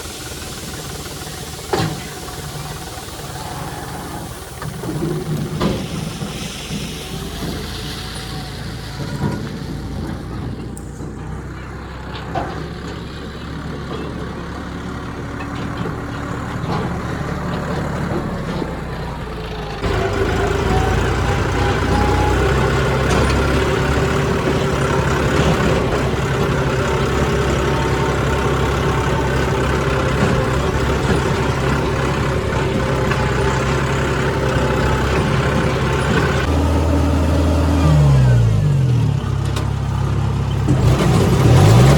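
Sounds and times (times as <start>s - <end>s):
farm machinery diesel engine: 0.0s - 41.9s.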